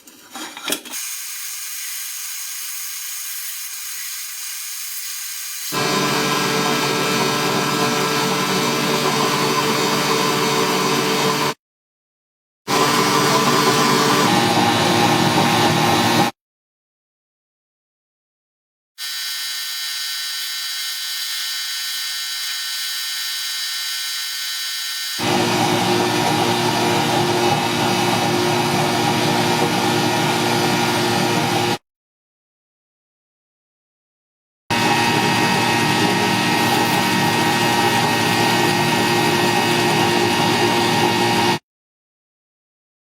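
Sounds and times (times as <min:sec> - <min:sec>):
small motor running: 0:19.0 - 0:25.3
electric power tool whining: 0:19.0 - 0:29.8.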